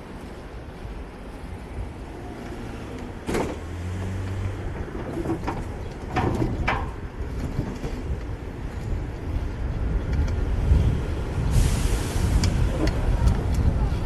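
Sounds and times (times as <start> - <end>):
road noise: 0.0 - 14.0
vehicle engines running: 0.0 - 14.0.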